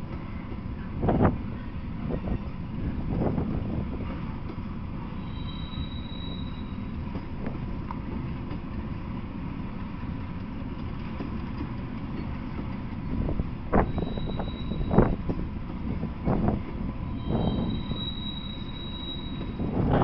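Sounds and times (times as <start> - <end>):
freight train wheels rumbling: 0.0 - 20.0
high wheel squeal: 5.1 - 7.0, 13.8 - 15.2, 17.0 - 20.0.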